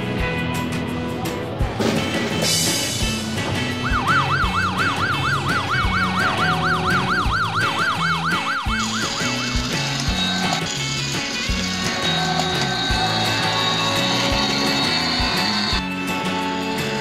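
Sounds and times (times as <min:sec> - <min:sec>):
background music with steady beat: 0:00.0 - 0:17.0
police siren fast yelp: 0:03.7 - 0:15.8.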